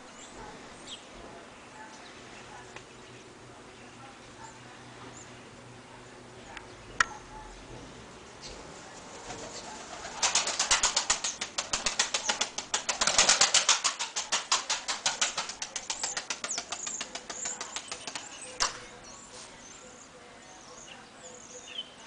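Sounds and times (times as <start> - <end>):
pigeon wings flapping: 9.0 - 18.8.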